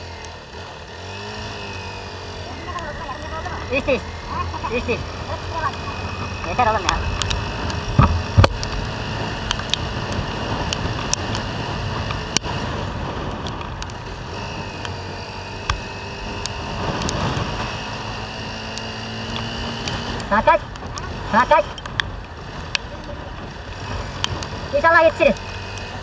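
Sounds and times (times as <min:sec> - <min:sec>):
motorcycle engine running: 0:00.0 - 0:26.0
riding noise: 0:00.0 - 0:26.0
sharp ticks: 0:02.6 - 0:26.0
loud thumps: 0:07.0 - 0:08.7.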